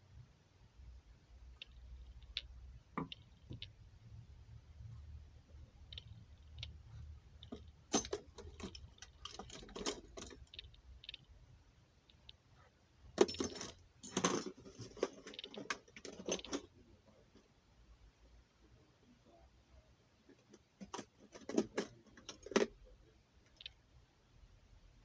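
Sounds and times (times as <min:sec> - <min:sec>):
rifle parts clicking and rattling: 0:07.4 - 0:11.3, 0:13.2 - 0:16.7, 0:20.3 - 0:22.7.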